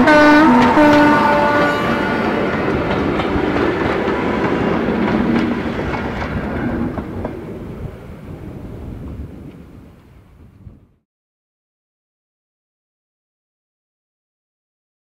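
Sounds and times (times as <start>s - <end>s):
train wheels clicking over rail joints: 0.0s - 10.2s.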